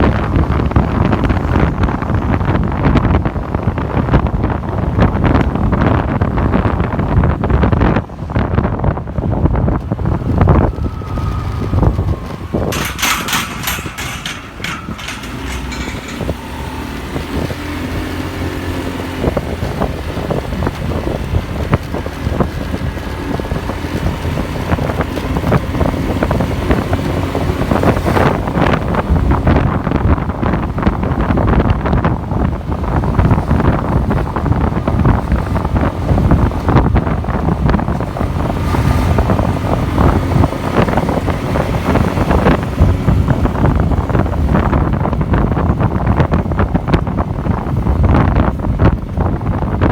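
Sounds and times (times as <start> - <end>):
passing road traffic: 0.0 - 49.9
wind buffeting microphone: 0.0 - 49.9
motorcycle engine: 10.0 - 28.9.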